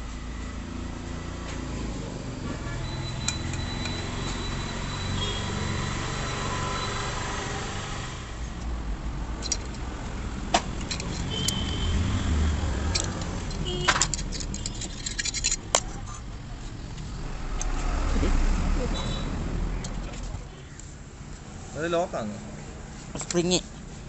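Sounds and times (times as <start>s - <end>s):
metal tools clicking and clinking: 9.4s - 9.9s, 10.8s - 12.0s, 12.8s - 16.2s.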